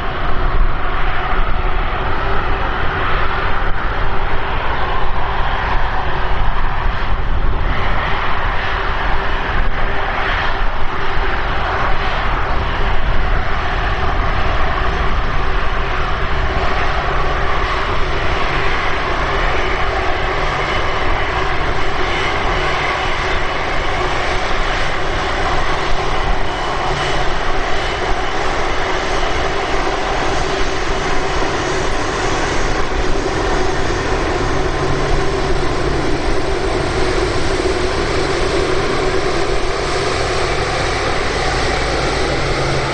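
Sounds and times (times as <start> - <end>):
jet engines running: 0.0 - 42.9.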